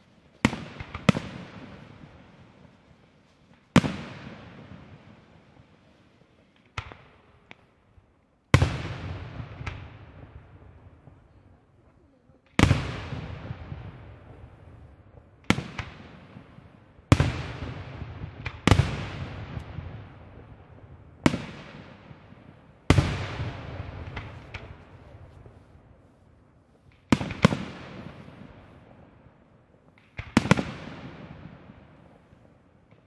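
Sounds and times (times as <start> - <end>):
lighter firework cracks: 0.0 - 7.9, 13.9 - 33.0.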